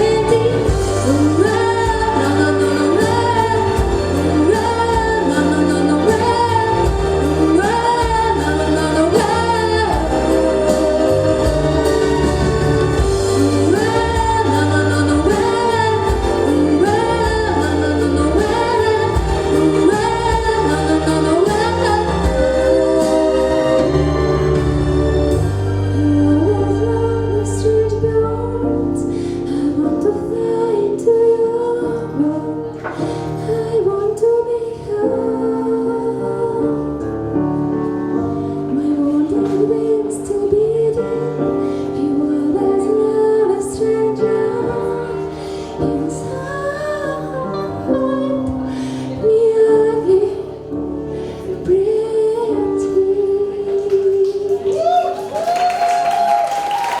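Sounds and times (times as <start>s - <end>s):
sustained instrumental chords: 0.0s - 29.9s.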